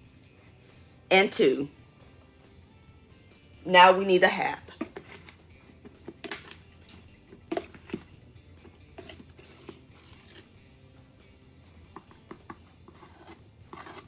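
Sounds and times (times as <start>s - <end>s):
cup scraping through flour: 4.7s - 6.6s, 7.4s - 8.1s, 8.8s - 10.6s, 12.0s - 14.0s
cup knocking plastic container: 4.8s - 5.2s, 7.4s - 8.1s, 11.9s - 12.6s.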